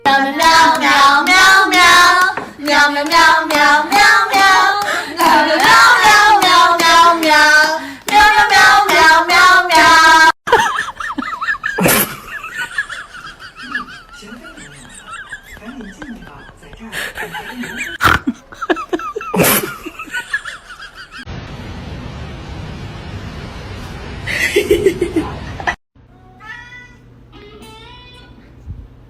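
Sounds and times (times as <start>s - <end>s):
high voices singing: 0.0s - 10.4s
rhythmic hand clapping: 0.3s - 10.2s.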